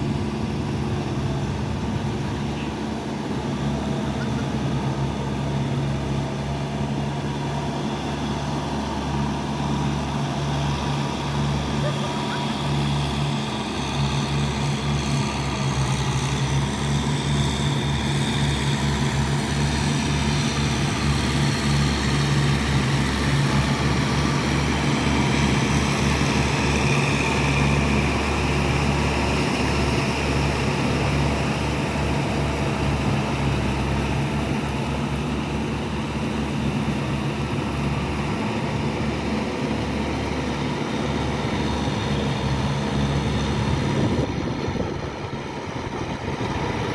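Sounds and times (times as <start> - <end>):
tractor diesel engine droning: 0.0 - 46.9.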